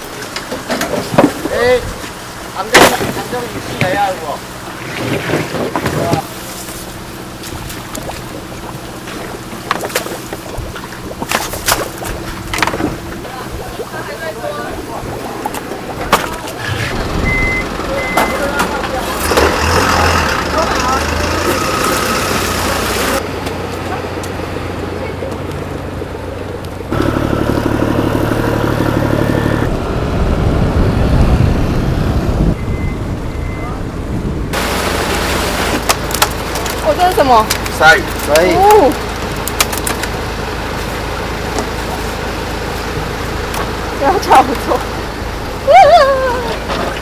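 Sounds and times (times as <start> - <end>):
engine humming: 0.0 - 47.0
low rumble: 14.7 - 35.4
motor running with even throb: 18.8 - 31.6.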